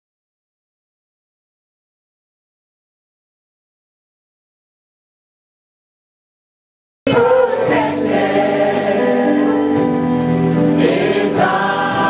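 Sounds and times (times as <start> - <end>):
backing music: 7.1 - 12.0
gospel choir singing: 7.1 - 12.0.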